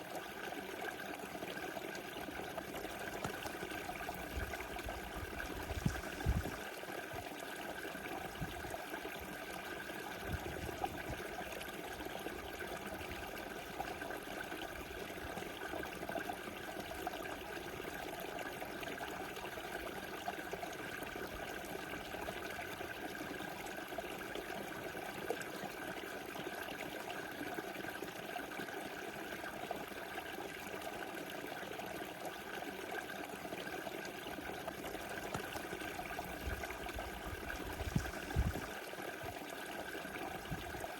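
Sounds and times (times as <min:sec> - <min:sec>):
river flowing over stones: 0:34.4 - 0:40.9.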